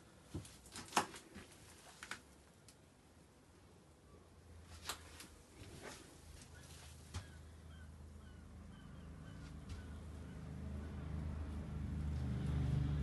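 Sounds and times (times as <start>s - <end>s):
faint bird chirping: 3.9s - 4.5s, 6.4s - 10.4s.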